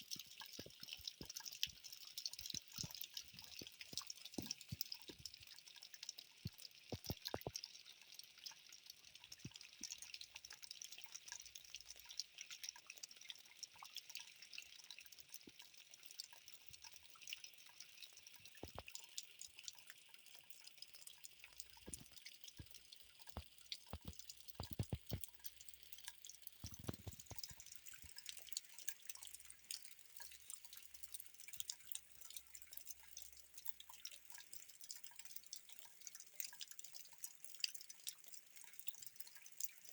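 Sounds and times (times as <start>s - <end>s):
rain pattering: 0.0s - 7.7s, 18.0s - 19.8s, 21.3s - 30.4s
water dripping: 0.0s - 39.9s.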